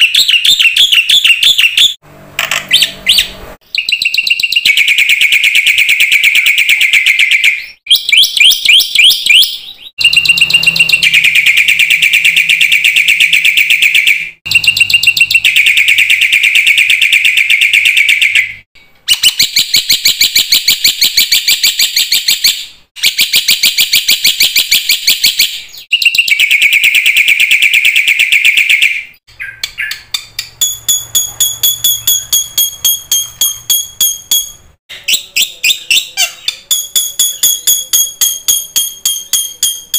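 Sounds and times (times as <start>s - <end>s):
bird chattering song: 0.0s - 2.0s, 2.6s - 39.9s
bird whistled call: 13.5s - 30.1s.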